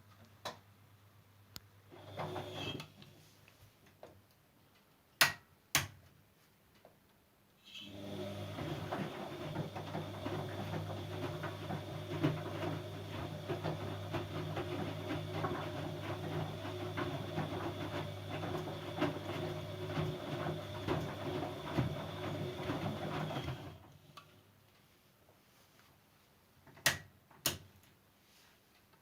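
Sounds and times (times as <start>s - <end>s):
washing machine motor hum: 1.9s - 2.8s, 7.8s - 24.1s.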